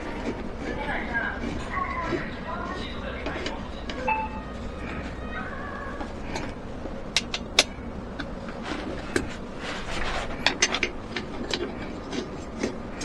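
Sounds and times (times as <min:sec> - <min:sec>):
steady low hum: 0:00.0 - 0:13.0
sharp clicks and knocks: 0:06.0 - 0:09.4.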